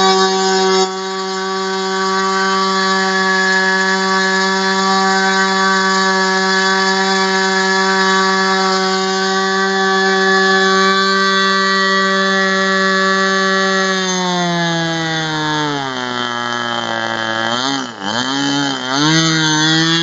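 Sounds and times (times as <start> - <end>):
model engine high-pitched buzz: 0.0 - 20.0.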